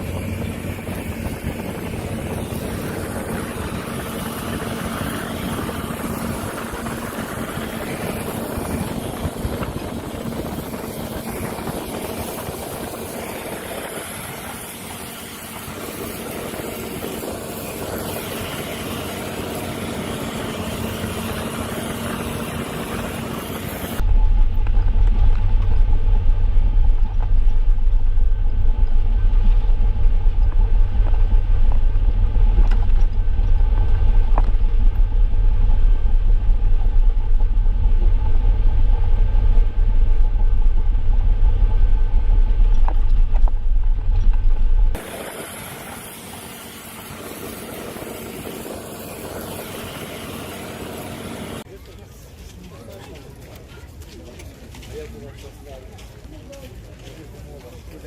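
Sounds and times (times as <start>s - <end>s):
deep low rumble: 0.0s - 18.6s, 19.2s - 45.2s
heavy machinery engine running: 0.0s - 51.7s
hiss: 45.0s - 51.6s.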